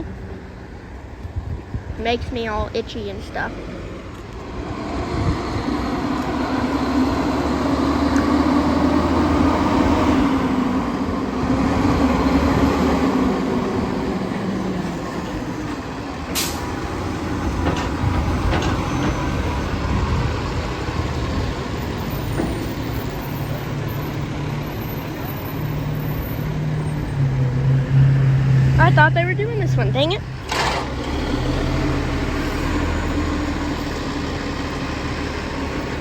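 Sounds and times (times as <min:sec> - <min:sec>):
garbage truck diesel engine: 0:02.0 - 0:36.0
short sharp hiss: 0:16.4 - 0:16.6.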